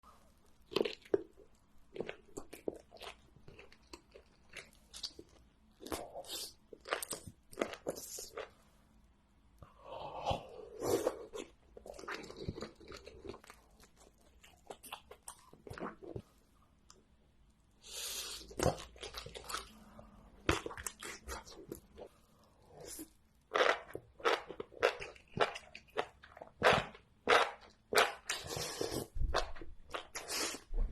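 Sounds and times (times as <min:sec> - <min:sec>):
crunchy food chewing: 0:00.5 - 0:08.5, 0:10.3 - 0:16.3, 0:22.8 - 0:30.6
chewing: 0:11.0 - 0:16.3.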